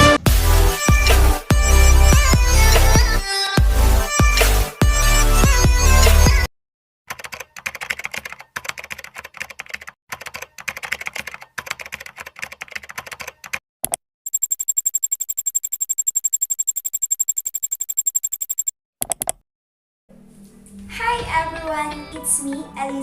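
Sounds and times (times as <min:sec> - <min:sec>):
keyboard typing clicks: 0:07.1 - 0:19.4
fast even ticks: 0:14.3 - 0:19.4.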